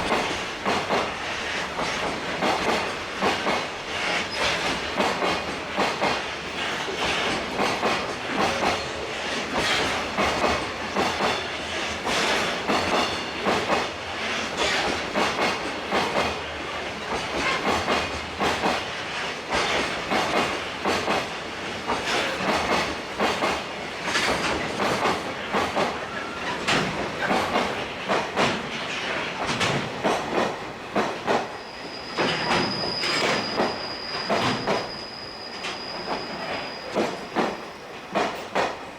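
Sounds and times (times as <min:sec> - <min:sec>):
freight train wagons rolling past: 0:00.0 - 0:38.9
high wheel squeal: 0:31.6 - 0:37.8.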